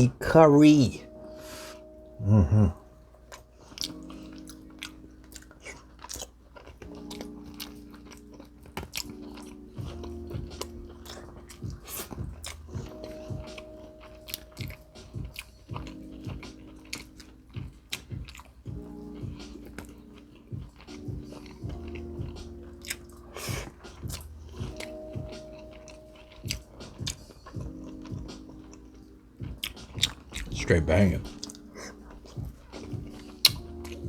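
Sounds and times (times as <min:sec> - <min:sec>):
soft background music: 0:00.0 - 0:34.0
close chewing and biting: 0:02.5 - 0:34.0.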